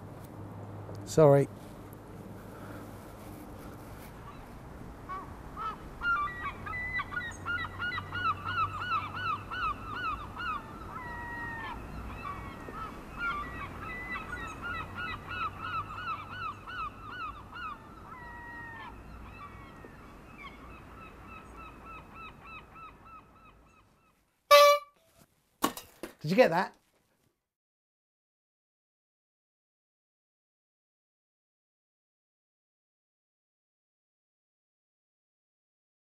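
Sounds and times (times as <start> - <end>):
birds calling quickly: 3.6 - 24.9
longer falling bird calls: 4.1 - 24.9.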